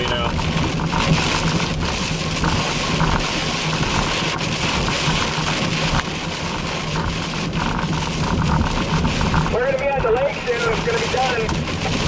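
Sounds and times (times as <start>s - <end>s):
car engine and road hum: 0.0s - 12.0s.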